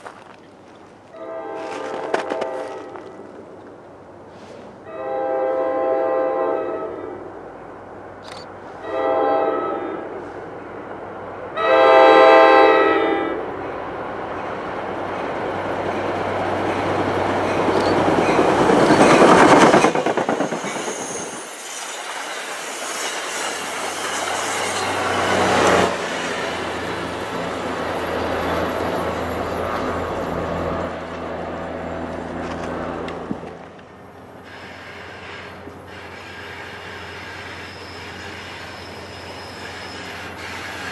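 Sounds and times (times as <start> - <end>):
diesel locomotive running: 0.0 - 40.9
train air horn blasts: 1.1 - 3.2, 4.4 - 7.3, 8.7 - 10.3, 11.6 - 13.4, 34.4 - 40.9
train wheels clattering on rails: 13.6 - 40.9.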